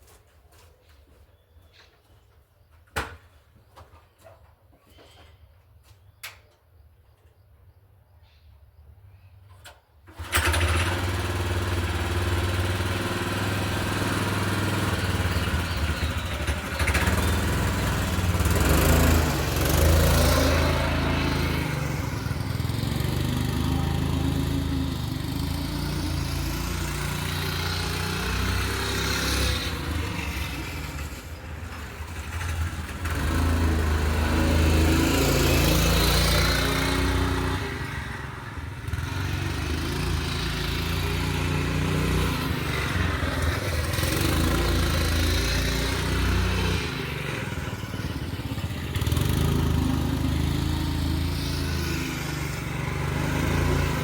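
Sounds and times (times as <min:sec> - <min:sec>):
small motorcycle engine running: 0:10.1 - 0:54.0.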